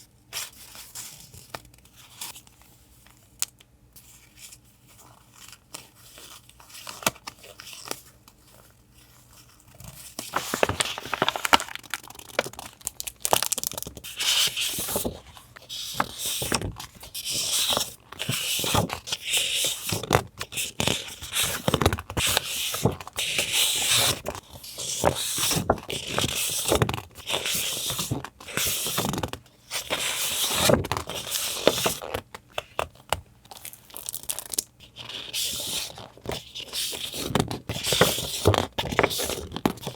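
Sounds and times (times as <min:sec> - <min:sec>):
paper rustling and tearing: 0:05.4 - 0:32.2.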